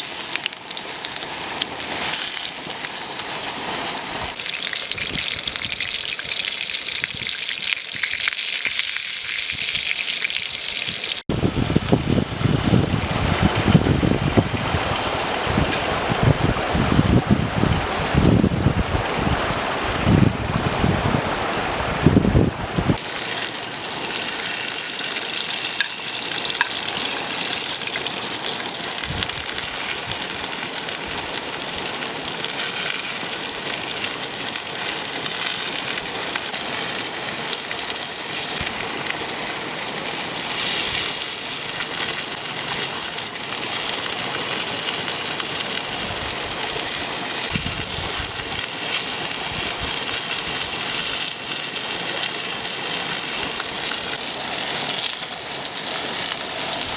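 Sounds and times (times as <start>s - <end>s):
stream water rushing: 11.6s - 56.9s.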